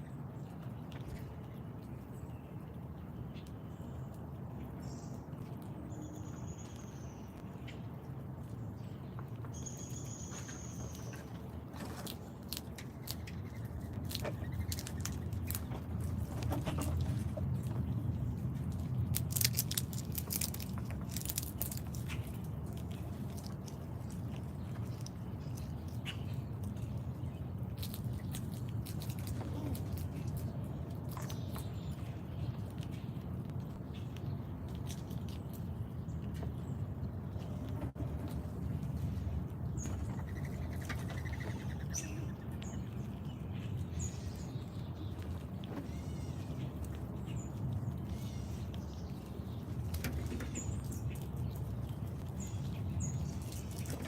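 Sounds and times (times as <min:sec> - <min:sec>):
birds chirping: 0:00.0 - 0:54.0
steady low rumble: 0:00.0 - 0:54.0
seeds being cracked and chewed: 0:11.8 - 0:36.6, 0:44.6 - 0:54.0.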